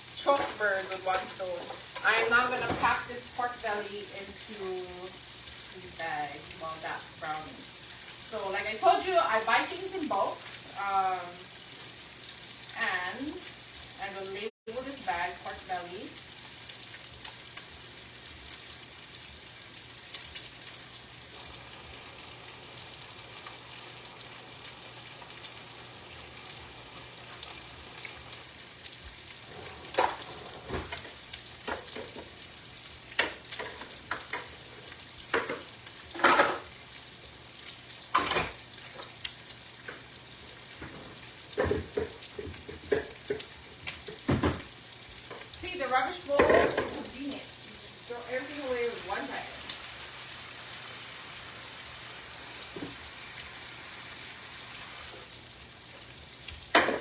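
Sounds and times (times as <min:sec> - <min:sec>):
food sizzling in a frying pan: 0:00.0 - 0:57.0
kitchen handling knocks and rustles: 0:40.8 - 0:44.7.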